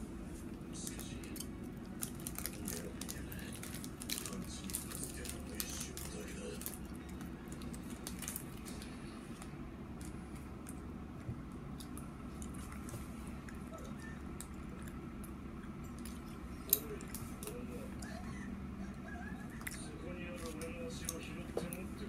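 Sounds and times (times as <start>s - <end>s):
steady low hum: 0.0s - 22.0s
person chewing a snack: 0.4s - 18.2s, 18.8s - 21.9s.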